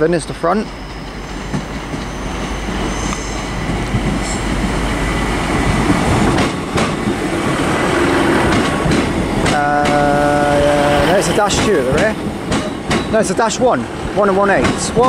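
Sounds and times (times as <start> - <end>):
diesel train rumbling on rails: 0.0 - 15.0
multi-note train horn: 2.1 - 3.6.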